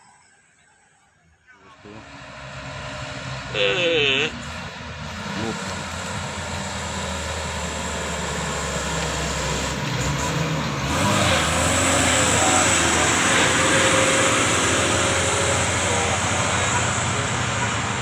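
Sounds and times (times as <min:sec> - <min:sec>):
diesel truck driving past: 0:01.6 - 0:18.0.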